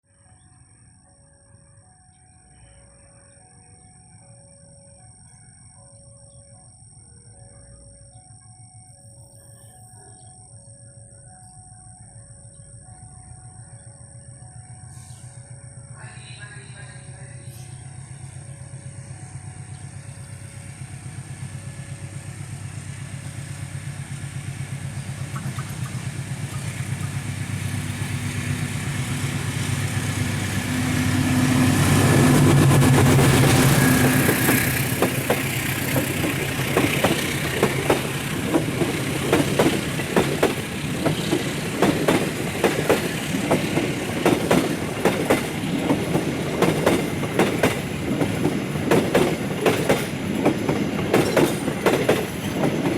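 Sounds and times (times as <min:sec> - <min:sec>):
diesel locomotive engine hum: 0:00.1 - 0:52.9
train wheels clattering over joints: 0:32.2 - 0:52.9.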